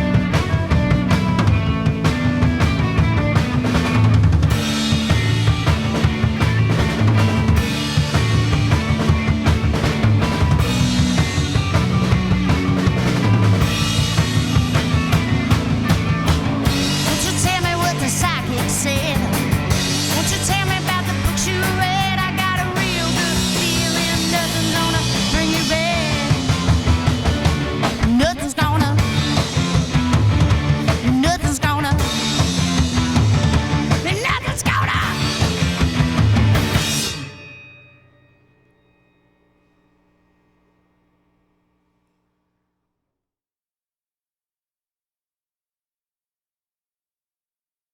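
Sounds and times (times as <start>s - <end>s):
bending guitar lines: 0.0s - 37.4s
drum kit beat: 0.0s - 37.5s
rock band playing live: 0.0s - 37.6s.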